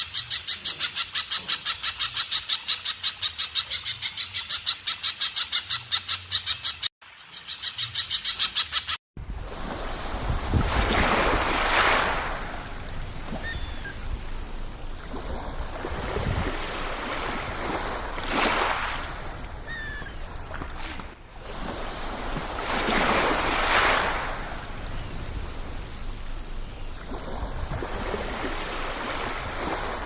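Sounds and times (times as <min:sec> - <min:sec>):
wind on microphone: 0:09.2 - 0:26.1, 0:26.9 - 0:30.0
sea waves washing on shore: 0:09.2 - 0:30.0
faint bird calls: 0:13.3 - 0:14.0, 0:19.6 - 0:20.3.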